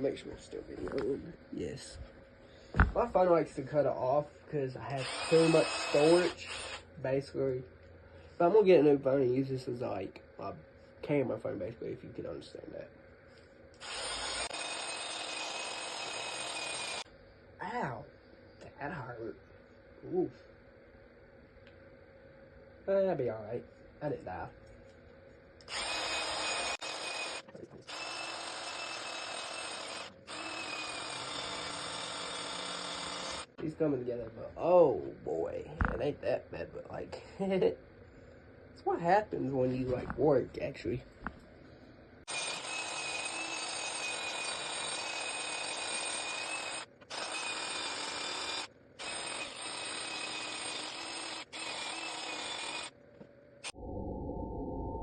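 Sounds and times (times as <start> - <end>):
power drill running: 5.0 - 6.9, 13.8 - 17.1, 25.6 - 33.6, 42.3 - 52.9.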